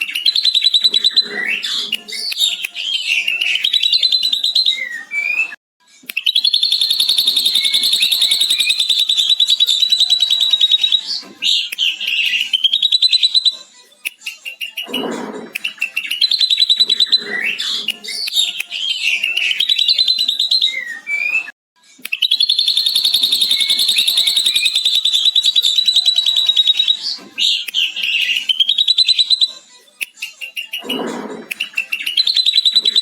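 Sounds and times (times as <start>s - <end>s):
bird chirping and whistling: 0.0s - 13.6s, 14.4s - 21.5s, 22.1s - 29.6s, 30.3s - 33.0s
bird chattering trill: 6.3s - 13.6s, 22.2s - 29.6s.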